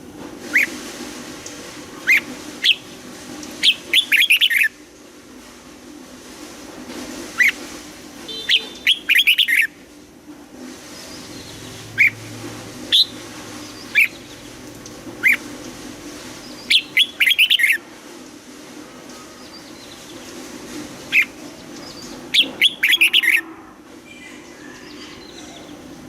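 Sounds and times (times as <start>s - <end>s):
bird calling and singing: 3.6s - 4.7s, 8.3s - 9.7s, 11.0s - 12.3s, 12.9s - 15.8s, 16.4s - 17.8s, 21.0s - 23.5s, 24.1s - 26.0s.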